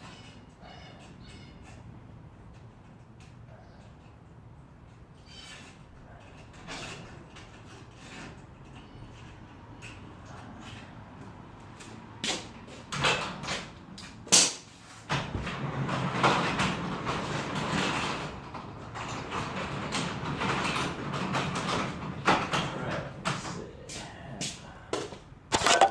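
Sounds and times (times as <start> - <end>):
garage door rolling rumble: 15.1 - 23.4.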